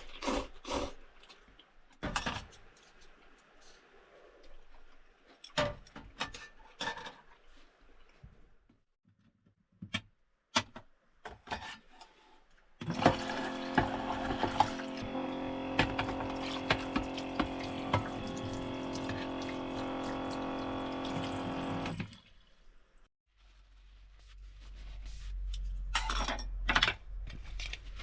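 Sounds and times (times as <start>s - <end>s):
tap water running into container: 12.8s - 22.4s.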